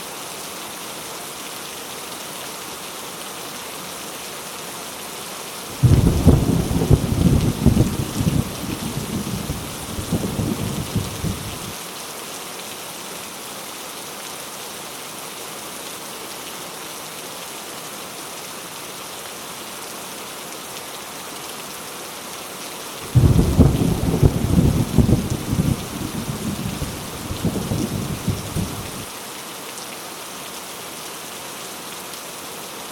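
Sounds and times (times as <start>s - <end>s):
heavy rain falling: 0.4s - 32.9s
rumbling thunder: 5.8s - 11.7s, 23.1s - 29.1s.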